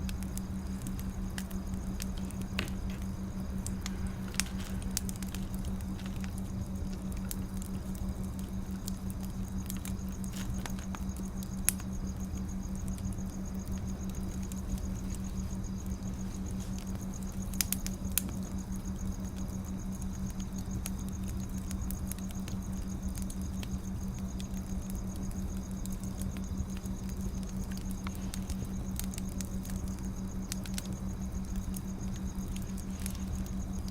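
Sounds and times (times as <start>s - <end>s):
low hum: 0.0s - 19.6s
wood fire crackling and popping: 0.0s - 33.9s.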